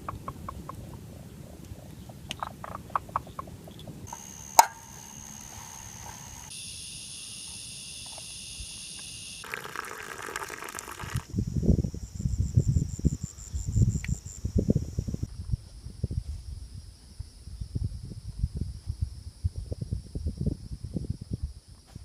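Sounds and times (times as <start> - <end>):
dense high insect buzz: 4.1 - 15.3
insect clicking calls: 4.1 - 15.3.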